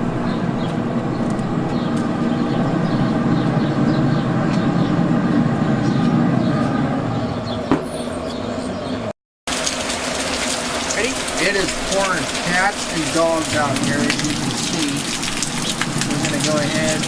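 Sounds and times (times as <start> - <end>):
heavy rain falling: 9.5 - 17.0.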